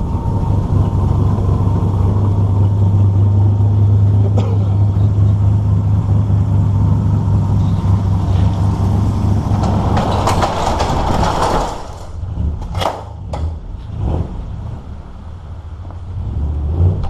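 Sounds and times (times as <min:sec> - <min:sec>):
rushing noise: 0:00.0 - 0:12.6
engine humming: 0:00.0 - 0:17.0.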